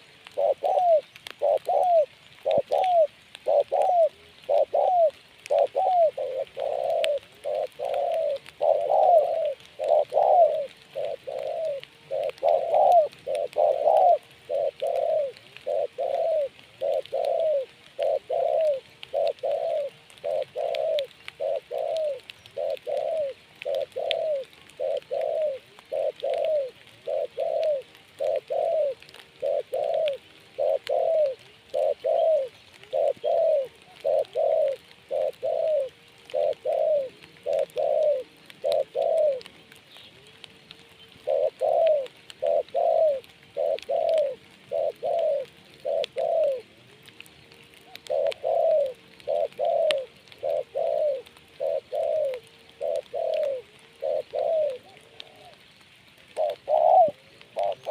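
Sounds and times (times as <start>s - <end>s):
dove cooing: 0.0s - 57.9s.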